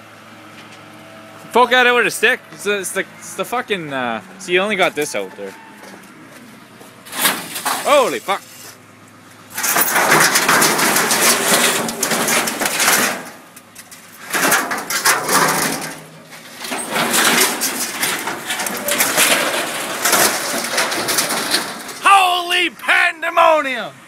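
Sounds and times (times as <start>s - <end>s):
scrap metal crashing and scraping: 7.0s - 8.7s, 9.4s - 22.2s.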